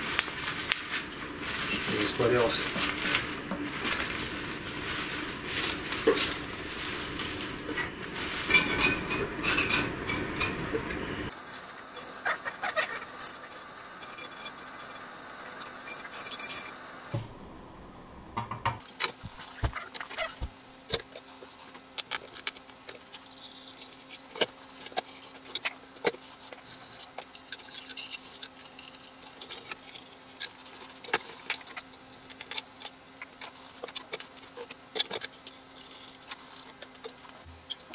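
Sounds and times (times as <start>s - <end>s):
faint hum: 0.0s - 29.4s.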